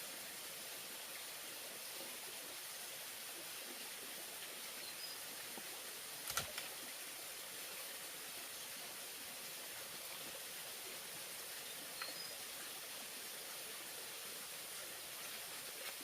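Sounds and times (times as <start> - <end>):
high outdoor hiss: 0.0 - 16.0
sharp clicks: 6.2 - 6.7.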